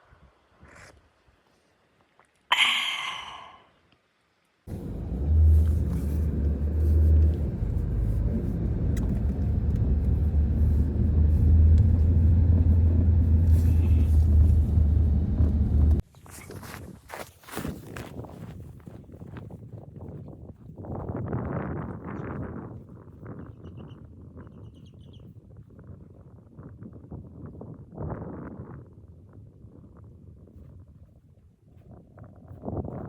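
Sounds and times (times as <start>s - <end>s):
loud low rumble: 4.7s - 16.0s.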